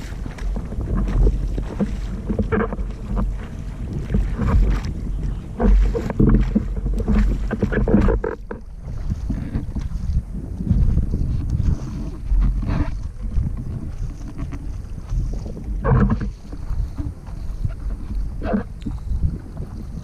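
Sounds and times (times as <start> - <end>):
water rushing along hull: 0.0 - 20.0
wind buffeting microphone: 0.0 - 20.0.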